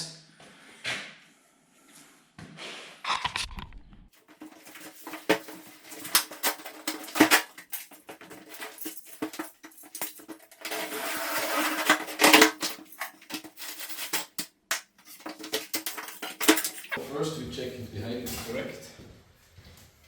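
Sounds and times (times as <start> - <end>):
knocks clicks and clatter: 11.7 - 17.0.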